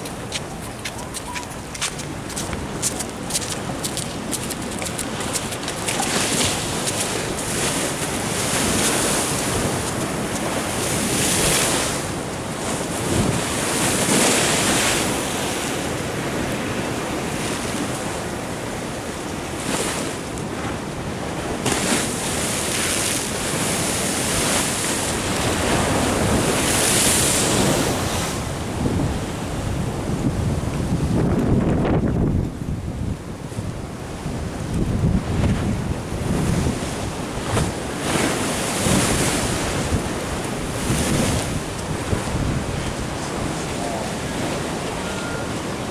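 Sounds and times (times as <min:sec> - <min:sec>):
wind buffeting microphone: 0:23.6 - 0:45.9.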